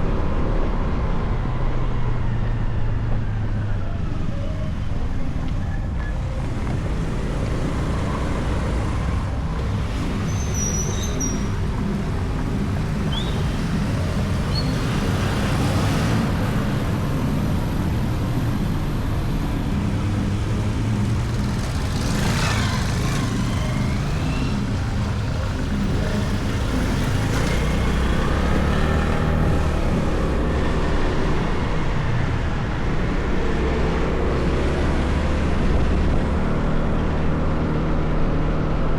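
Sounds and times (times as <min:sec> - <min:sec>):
road and wind noise: 0:00.0 - 0:38.9
motorcycle engine running: 0:19.3 - 0:31.9.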